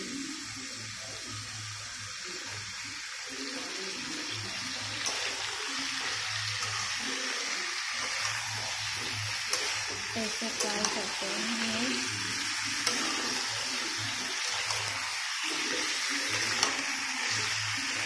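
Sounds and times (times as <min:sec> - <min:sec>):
food sizzling in hot oil: 0:00.0 - 0:18.0
spatula clicking on pan: 0:16.3 - 0:16.8.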